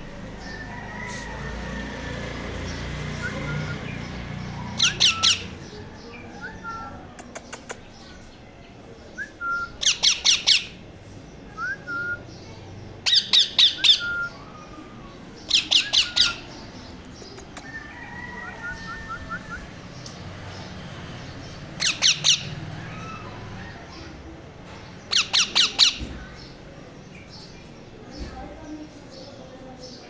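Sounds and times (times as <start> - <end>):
parrot chicks squawking: 0.2 - 5.7, 9.8 - 10.8, 15.4 - 19.7, 21.8 - 24.2, 25.1 - 26.2
soft chirps and whistles: 9.2 - 9.9.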